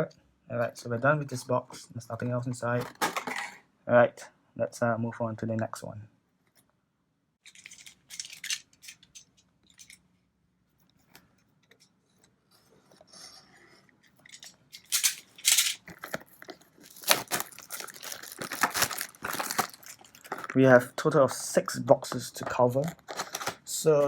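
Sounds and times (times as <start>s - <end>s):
packaging rustling and tearing: 7.5s - 9.2s, 14.3s - 20.7s, 22.8s - 23.7s.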